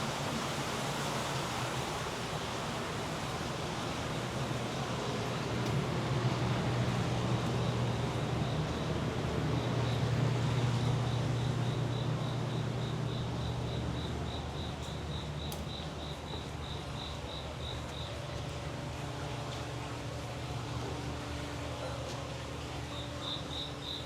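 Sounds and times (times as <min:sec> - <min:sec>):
steady low hum: 0:02.5 - 0:24.0
insect chirping: 0:09.6 - 0:10.1, 0:11.0 - 0:18.2, 0:22.9 - 0:24.0.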